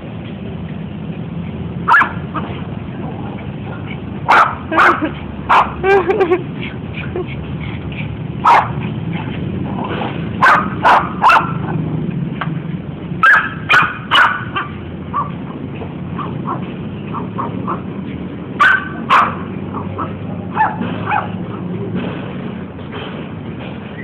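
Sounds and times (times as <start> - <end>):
dog barking: 1.9 - 2.5, 4.3 - 5.8, 8.4 - 8.8, 10.4 - 11.7, 13.2 - 15.4, 16.2 - 17.8, 18.6 - 21.4.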